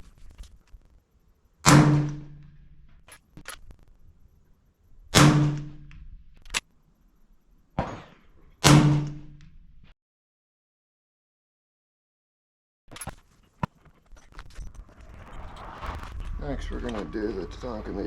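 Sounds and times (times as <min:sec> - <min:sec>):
suppressed rifle shots: 0:01.6 - 0:02.5, 0:05.1 - 0:05.9.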